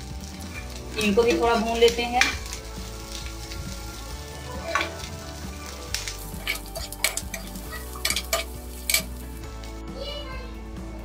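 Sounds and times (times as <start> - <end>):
onions sizzling in hot oil: 0.0 - 9.9
metal spatula scraping a pan: 6.2 - 9.2.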